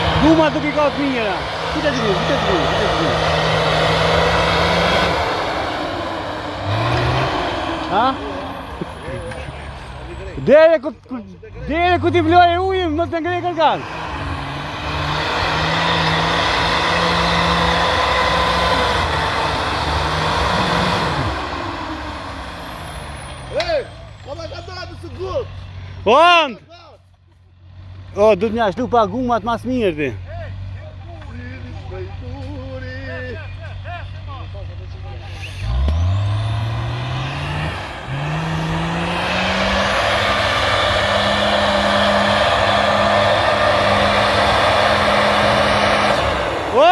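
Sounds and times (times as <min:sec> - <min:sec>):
motorcycle engine accelerating hard: 0:00.0 - 0:10.4, 0:35.5 - 0:46.9
truck engine running: 0:00.0 - 0:46.9.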